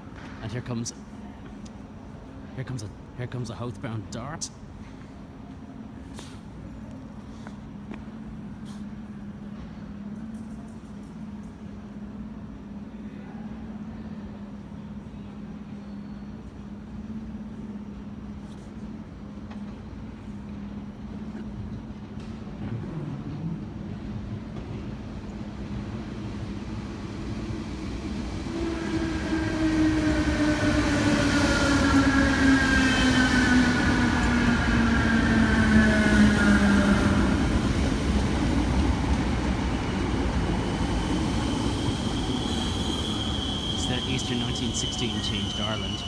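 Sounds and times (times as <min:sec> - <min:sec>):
train rumble: 0:17.5 - 0:46.0
steady high-pitched tone: 0:41.4 - 0:46.0.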